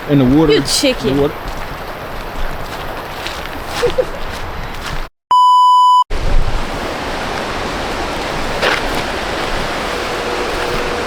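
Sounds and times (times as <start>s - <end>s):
censor bleep: 5.3s - 6.1s
steady rushing noise: 6.1s - 11.0s.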